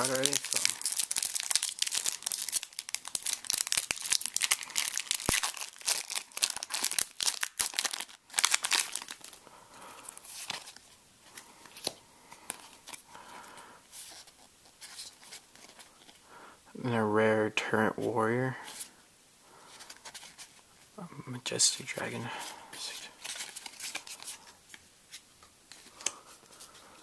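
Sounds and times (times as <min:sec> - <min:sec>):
cards rustling: 0:00.0 - 0:09.4, 0:10.0 - 0:13.0, 0:22.8 - 0:27.0
foil wrapper crinkling and tearing: 0:00.0 - 0:09.4, 0:23.2 - 0:24.4.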